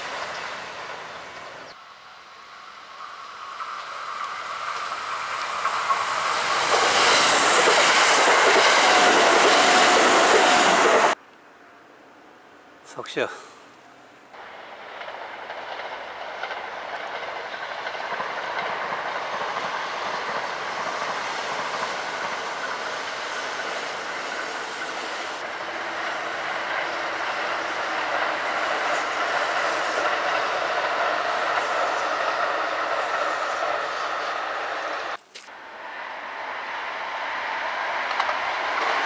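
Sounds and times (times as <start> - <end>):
electric train passing: 0.0 - 11.8, 14.3 - 39.0.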